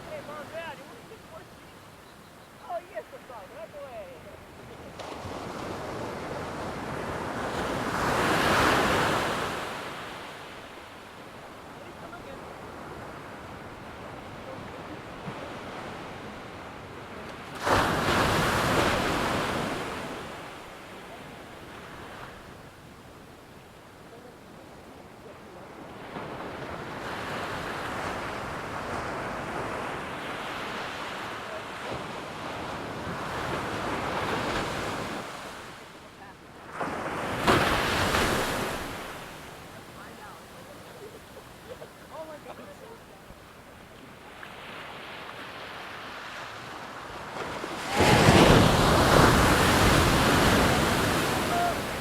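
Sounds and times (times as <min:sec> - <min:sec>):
ocean surf washing: 0:00.0 - 0:52.0
wave breaking: 0:47.0 - 0:52.0.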